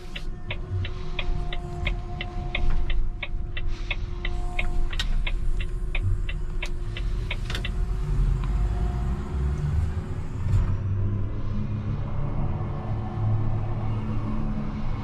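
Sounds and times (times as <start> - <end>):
regular ticking: 0.0 - 9.7
truck engine rumble: 0.0 - 11.1.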